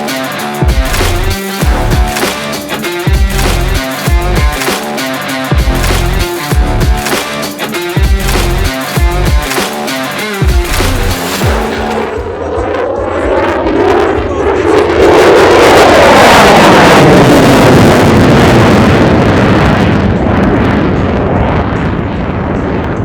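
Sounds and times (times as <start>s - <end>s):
aircraft flypast roar: 11.2s - 22.8s.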